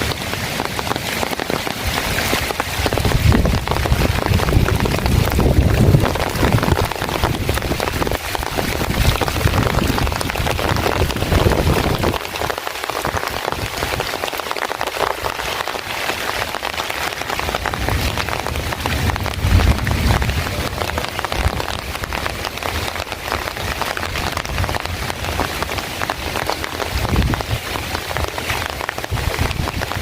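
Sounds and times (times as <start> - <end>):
heavy rain falling: 0.0 - 30.0
low rumble: 17.6 - 22.8.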